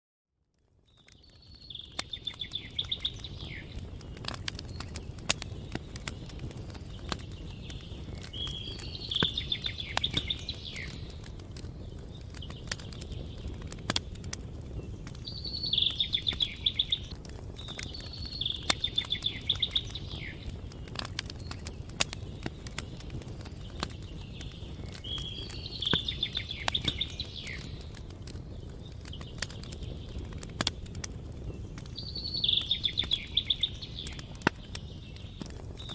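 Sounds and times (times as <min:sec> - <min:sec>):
campfire crackling and popping: 0:00.4 - 0:35.9
songbird trilling: 0:15.3 - 0:17.1.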